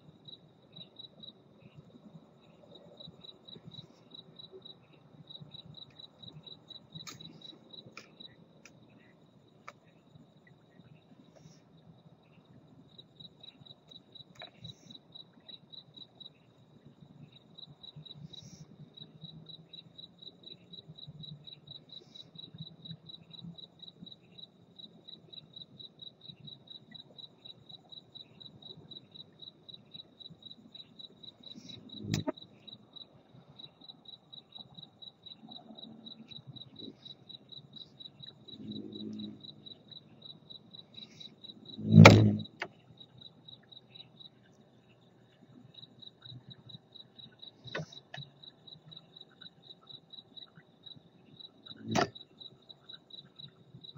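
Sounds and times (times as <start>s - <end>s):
cricket chirping: 0.0s - 53.9s
sudden loud noise: 41.8s - 42.5s.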